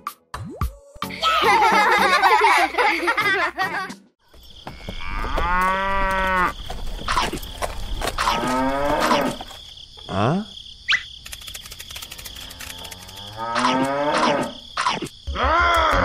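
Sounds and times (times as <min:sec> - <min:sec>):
cow mooing: 0:08.3 - 0:09.4.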